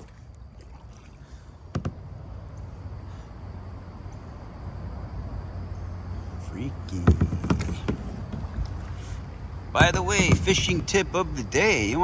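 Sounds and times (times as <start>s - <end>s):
steady low rumble: 1.2s - 12.0s
sharp knocks: 1.7s - 2.0s, 7.0s - 8.6s, 9.8s - 10.9s.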